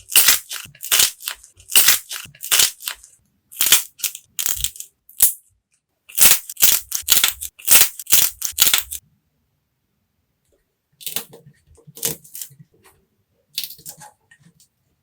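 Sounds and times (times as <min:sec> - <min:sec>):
clay crunching: 0:00.0 - 0:05.4, 0:06.1 - 0:09.0.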